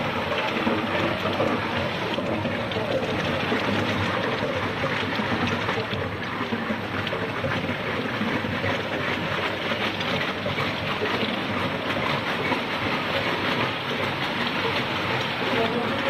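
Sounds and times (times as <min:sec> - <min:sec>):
ice machine mechanical din: 0:00.0 - 0:16.0
water noise: 0:00.0 - 0:16.0.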